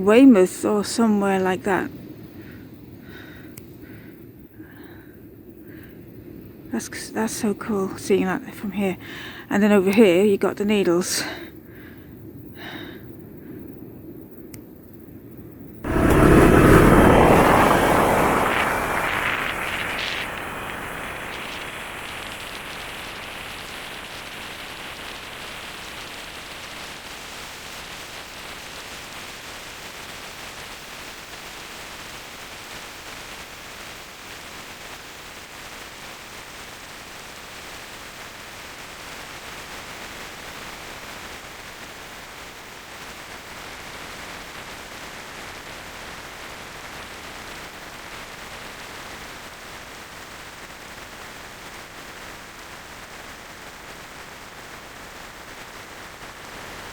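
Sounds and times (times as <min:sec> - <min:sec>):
motorcycle road noise: 0:15.9 - 0:25.0
rushing wind: 0:15.9 - 0:27.3.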